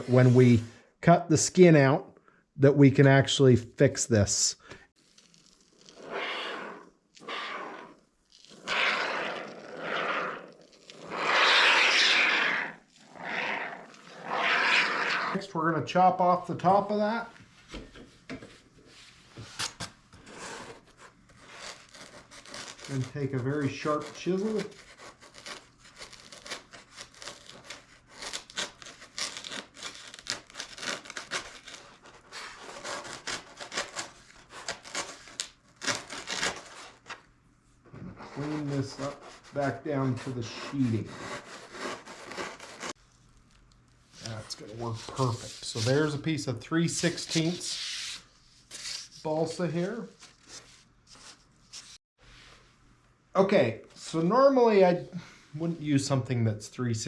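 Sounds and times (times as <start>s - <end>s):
chisel scraping foam: 0.0s - 0.6s, 5.0s - 15.5s, 19.6s - 37.1s, 38.0s - 43.0s.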